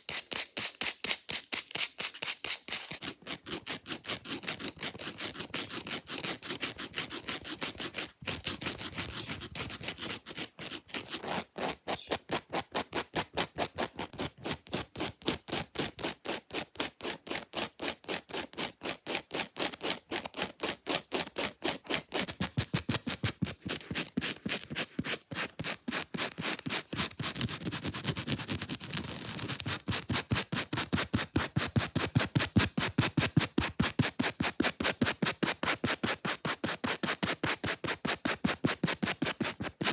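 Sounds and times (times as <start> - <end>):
fake nails scratching surface: 0.2 - 14.2, 22.2 - 31.3.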